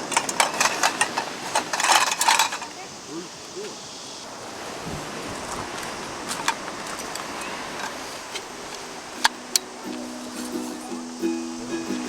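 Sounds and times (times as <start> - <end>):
stream flowing over rocks: 4.2 - 12.0.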